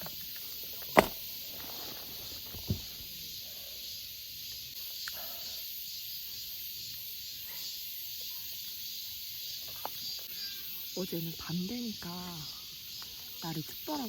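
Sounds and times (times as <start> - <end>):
insects chorus: 0.0 - 14.0
dull thump: 0.8 - 3.1.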